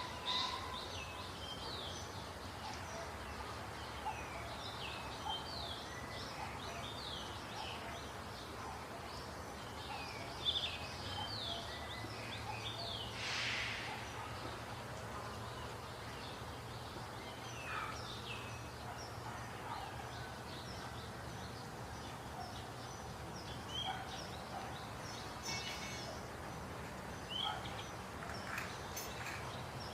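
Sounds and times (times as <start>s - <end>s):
brief hiss: 13.1s - 14.1s
birds chirping: 13.8s - 29.9s.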